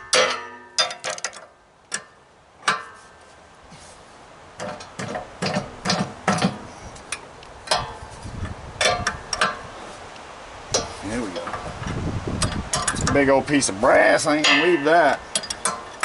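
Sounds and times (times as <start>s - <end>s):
hand tools knocking on metal: 14.4s - 16.0s.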